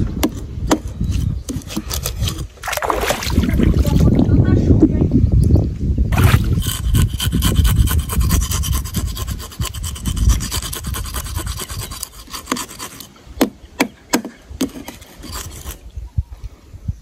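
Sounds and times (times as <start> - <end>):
rasping and scraping: 0.0 - 4.0, 6.1 - 13.2, 14.2 - 15.9.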